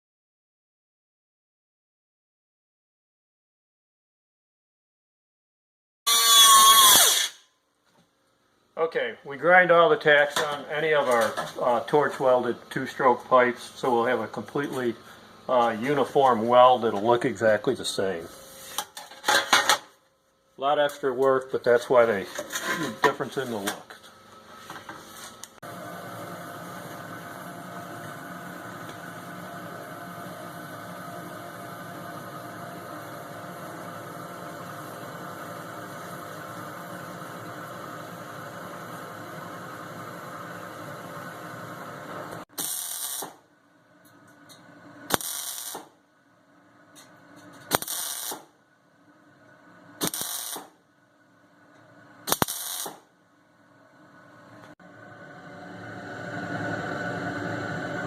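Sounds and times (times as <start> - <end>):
short welding bursts: 6.1 - 7.4, 42.6 - 43.4, 45.1 - 46.0, 47.7 - 48.5, 50.0 - 50.8, 52.3 - 53.1
welding hiss: 42.6 - 43.4, 45.1 - 46.0, 47.7 - 48.5, 50.0 - 50.8, 52.3 - 53.0.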